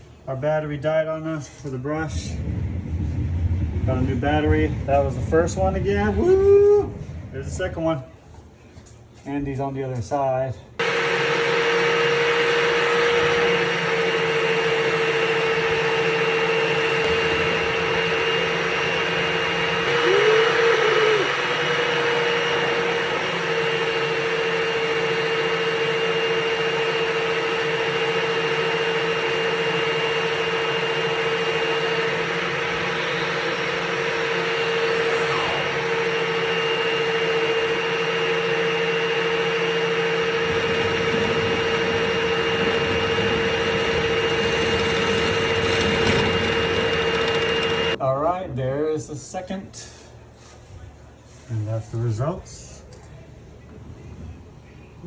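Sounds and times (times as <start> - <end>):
motor whine with airy noise: 10.8 - 48.0.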